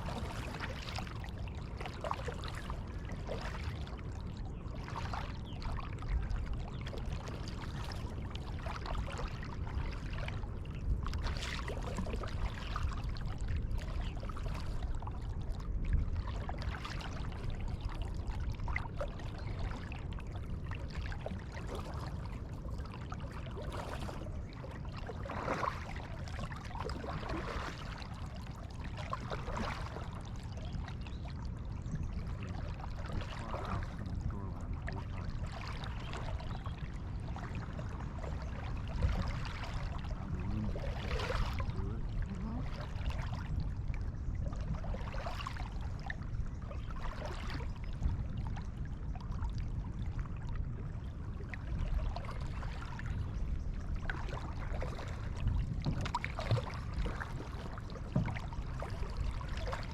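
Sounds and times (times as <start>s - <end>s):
paddle splashing water: 0.0s - 49.7s, 50.3s - 59.9s
steady low rumble: 31.1s - 35.6s, 36.2s - 40.9s, 41.6s - 44.8s.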